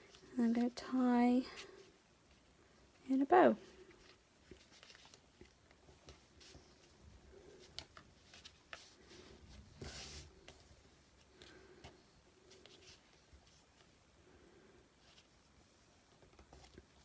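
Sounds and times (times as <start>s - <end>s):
faint paper rustles: 0.0s - 17.0s.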